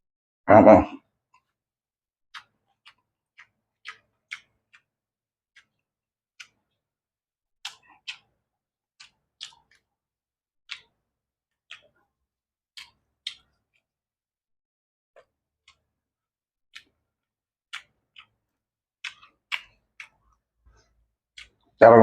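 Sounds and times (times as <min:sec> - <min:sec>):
person chewing: 0:02.3 - 0:07.0, 0:07.6 - 0:10.0, 0:10.7 - 0:14.0, 0:15.2 - 0:21.8.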